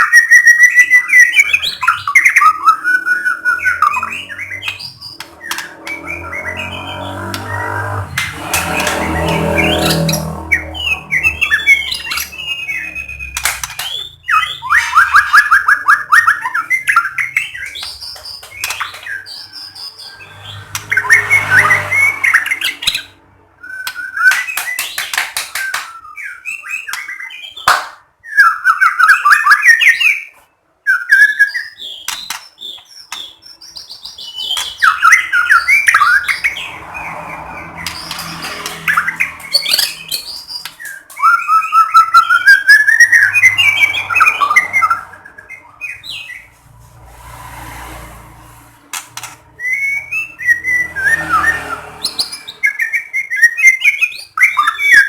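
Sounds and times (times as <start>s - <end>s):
songbird whistling and trilling: 0.0s - 46.5s, 49.5s - 55.0s.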